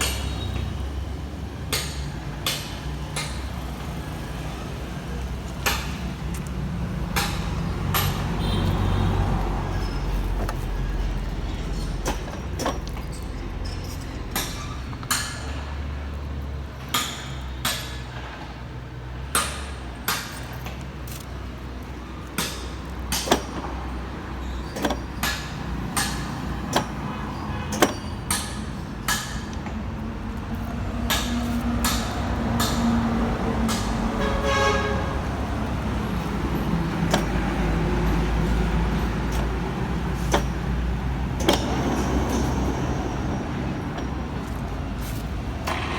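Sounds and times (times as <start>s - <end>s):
sharp clicks and knocks: 5.1s - 9.0s, 9.7s - 15.7s, 19.3s - 45.9s.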